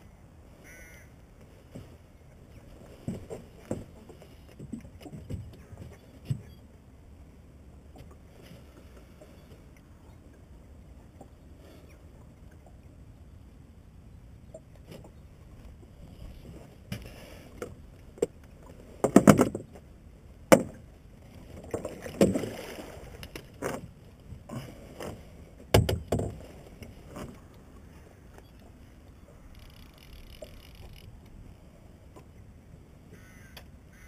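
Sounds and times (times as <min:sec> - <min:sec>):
knocks on small boat: 0:19.0 - 0:19.7, 0:20.5 - 0:20.8, 0:25.7 - 0:26.4.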